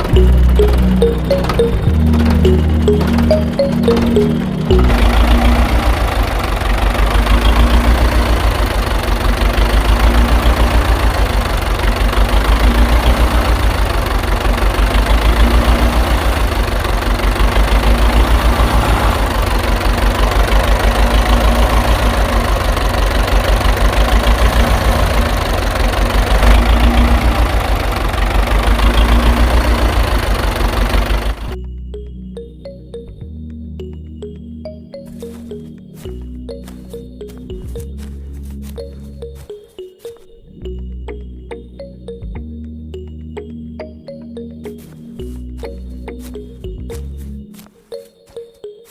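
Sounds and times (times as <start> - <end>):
tractor engine idling: 0.0 - 31.6.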